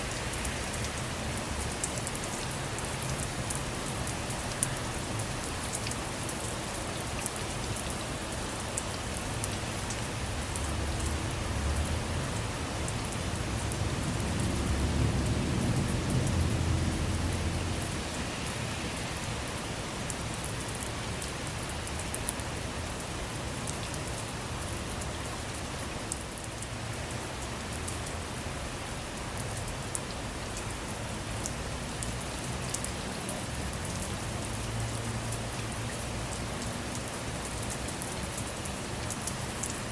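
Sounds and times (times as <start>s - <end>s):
steady rain: 0.0s - 39.9s
low rumble of thunder: 13.5s - 18.0s.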